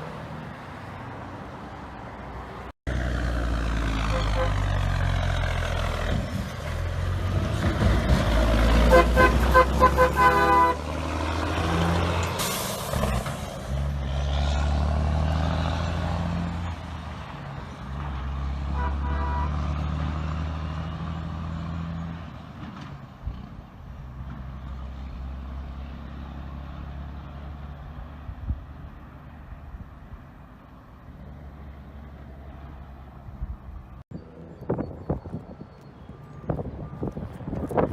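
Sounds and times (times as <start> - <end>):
diesel truck engine roaring: 0.0 - 37.9
train horn blasts: 4.0 - 4.8, 8.9 - 10.8, 18.7 - 19.8.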